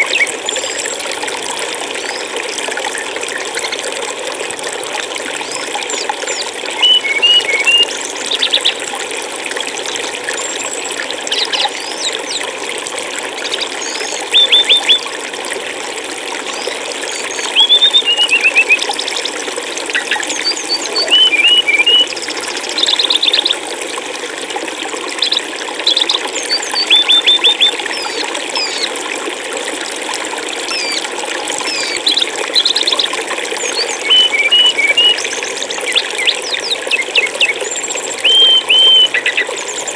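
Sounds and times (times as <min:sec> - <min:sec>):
stream water rushing: 0:00.0 - 0:39.9
songbird chirping: 0:20.3 - 0:22.0, 0:38.2 - 0:39.5.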